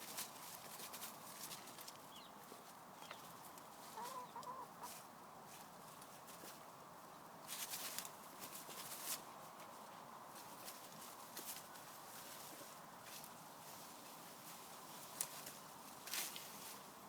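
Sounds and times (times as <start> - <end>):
rustling in undergrowth: 0.0 - 17.0
hens clucking: 3.0 - 5.1.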